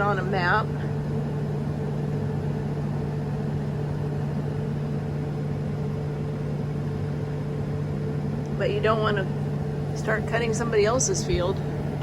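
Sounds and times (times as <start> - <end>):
vehicle engine hum: 6.0 - 12.0.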